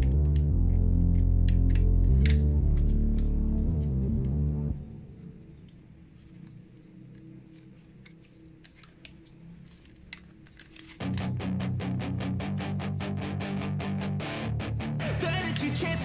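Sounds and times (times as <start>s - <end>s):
low hum: 0.0s - 9.0s
plastic toy parts clicking: 1.1s - 2.4s
loud guitar music: 11.0s - 16.0s.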